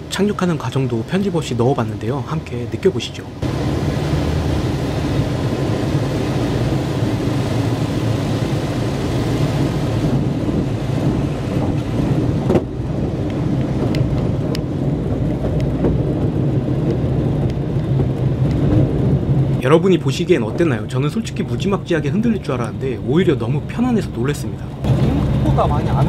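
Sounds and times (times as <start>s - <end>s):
propeller engine droning: 0.0s - 26.0s
rush of air noise: 3.4s - 20.9s.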